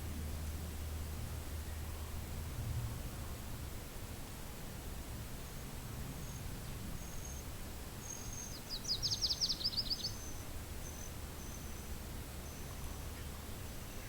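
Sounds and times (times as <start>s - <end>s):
low wind rumble: 0.0s - 14.0s
songbird trill: 6.2s - 14.0s.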